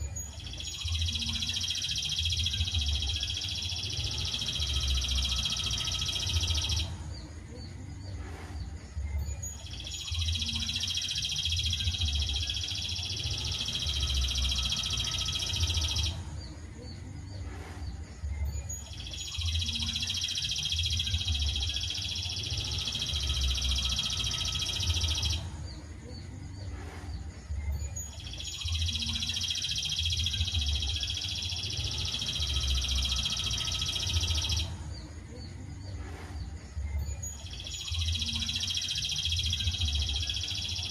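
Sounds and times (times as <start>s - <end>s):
low pulsing hum: 0.0s - 40.9s.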